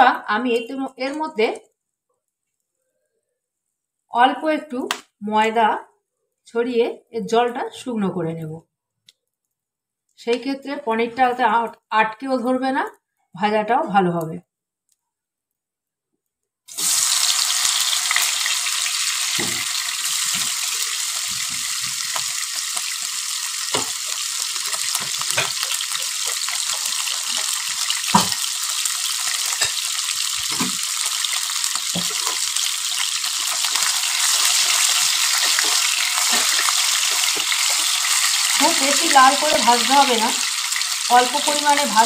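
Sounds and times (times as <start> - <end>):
cheese cubes sizzling in oil: 16.7 - 42.0
spatula turning food: 16.8 - 41.8.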